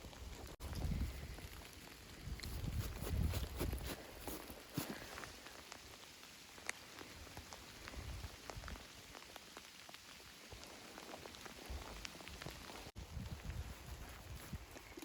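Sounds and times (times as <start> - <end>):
light rain hissing: 0.0 - 15.0
raindrops ticking: 4.6 - 13.0.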